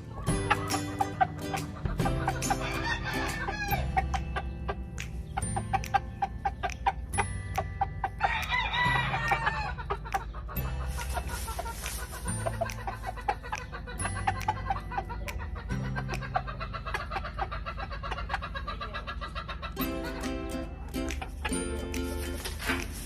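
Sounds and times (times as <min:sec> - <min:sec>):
roosters crowing: 0:00.0 - 0:04.1, 0:08.2 - 0:10.0
rooster clucking: 0:00.0 - 0:23.0.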